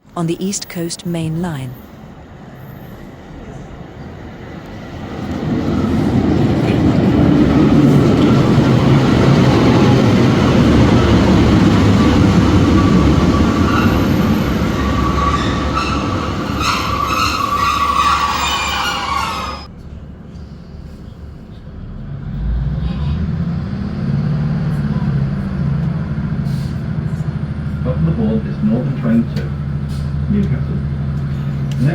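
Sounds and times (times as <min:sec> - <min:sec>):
train running with high squealing: 0:04.8 - 0:19.7.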